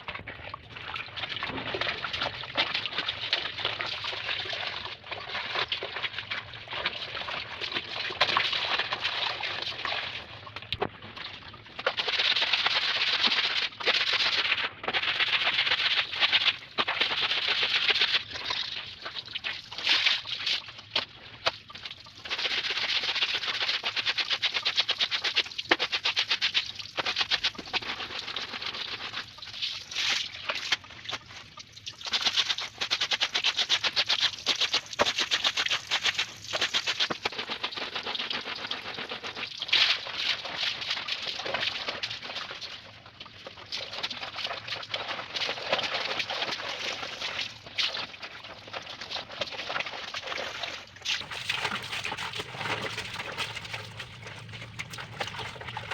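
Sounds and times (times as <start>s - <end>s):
laundry scrubbed by hand: 51.1s - 55.9s.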